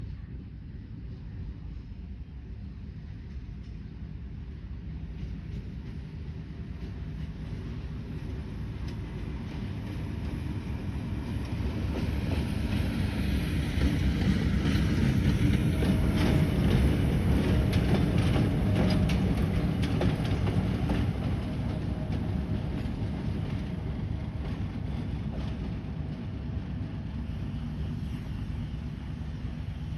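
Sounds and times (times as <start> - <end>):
train rumbling past: 0.0 - 29.9
wheels clicking over rail joints: 13.7 - 22.9.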